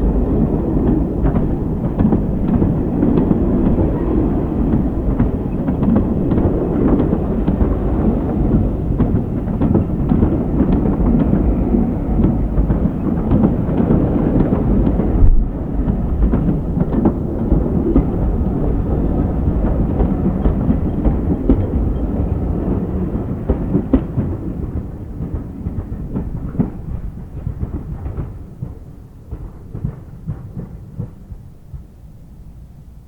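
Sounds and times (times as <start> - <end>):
steam train rumbling past: 0.0 - 33.0.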